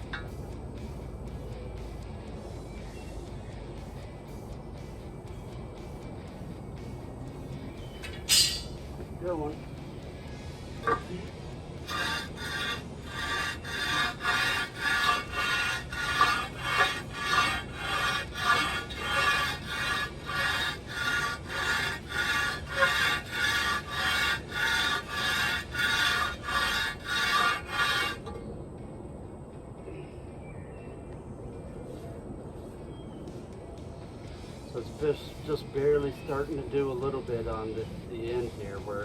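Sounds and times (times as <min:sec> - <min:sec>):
metal rasping on rough concrete: 0:08.0 - 0:08.8, 0:10.8 - 0:28.3.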